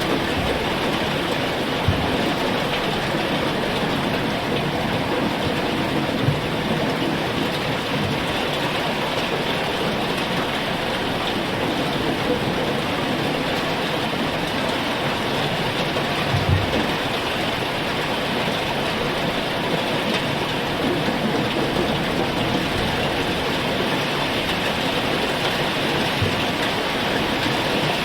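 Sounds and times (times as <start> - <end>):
heavy rain falling: 0.0 - 28.0
low knocks: 1.8 - 2.4.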